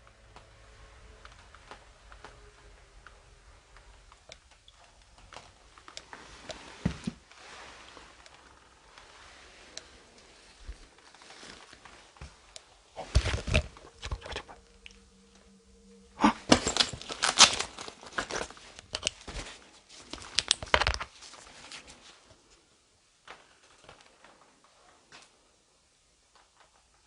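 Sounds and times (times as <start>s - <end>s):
faint steady tone: 0.0s - 18.0s
rustling and crunching: 0.3s - 25.3s.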